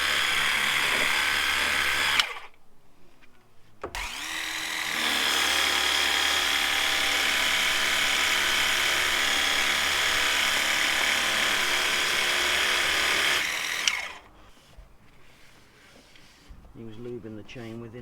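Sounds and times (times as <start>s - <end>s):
electric drill whining: 0.0s - 2.5s, 3.9s - 14.3s.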